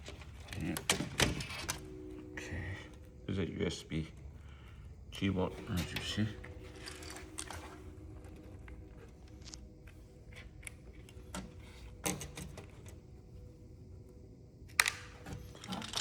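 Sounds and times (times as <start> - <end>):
plastic keyboard parts clicking: 14.7 - 16.0.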